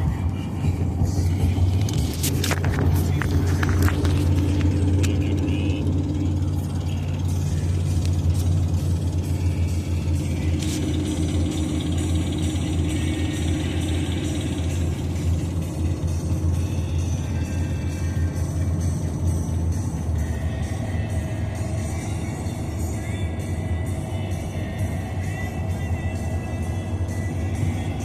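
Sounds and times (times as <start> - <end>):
road and engine drone in car: 0.0 - 28.0
clicks and rattles: 1.0 - 5.5.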